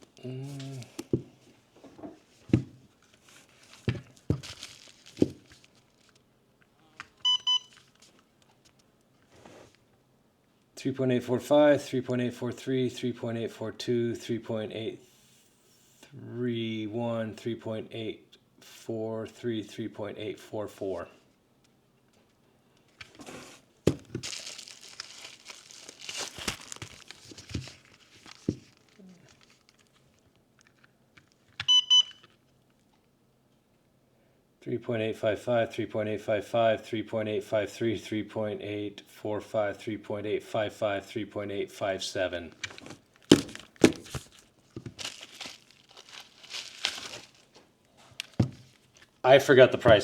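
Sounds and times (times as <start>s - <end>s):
packaging rustling: 2.2s - 6.2s, 22.9s - 31.5s, 42.5s - 49.2s
battery packs knocking: 3.9s - 5.5s, 23.8s - 24.4s, 42.6s - 45.7s
short high beeps: 31.7s - 32.2s.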